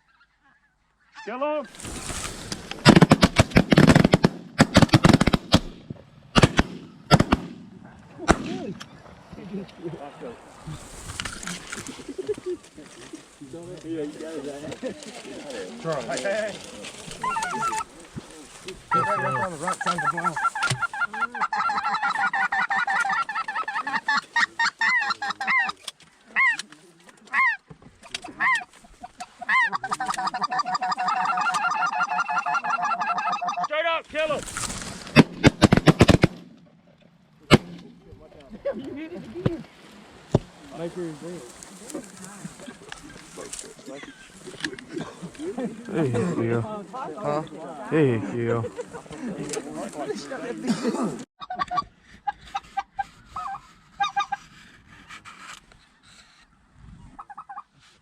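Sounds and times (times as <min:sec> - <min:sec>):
shotguns firing: 0:01.8 - 0:08.8, 0:35.0 - 0:36.6, 0:37.5 - 0:37.9
geese honking: 0:10.0 - 0:34.4, 0:51.4 - 0:54.6, 0:57.2 - 0:57.7.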